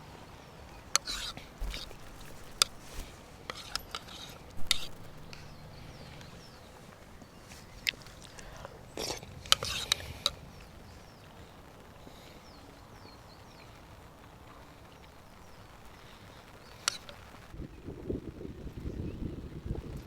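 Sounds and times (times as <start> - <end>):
low steady background noise: 0.0 - 20.0
sharp clicks and knocks: 1.6 - 3.2, 4.6 - 5.6.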